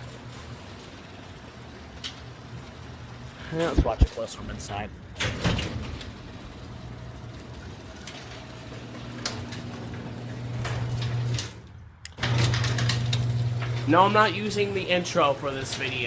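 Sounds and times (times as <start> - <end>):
garage door opener motor hum: 0.0 - 3.4, 5.1 - 16.0
garage door clacks: 5.1 - 14.2.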